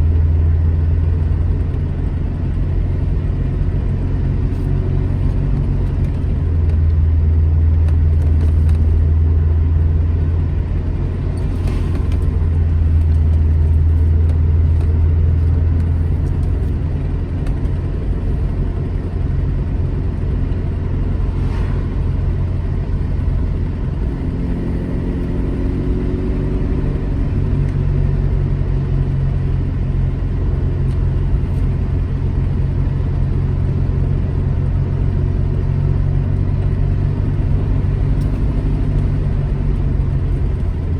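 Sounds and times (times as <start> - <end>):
car engine running: 0.0 - 40.9.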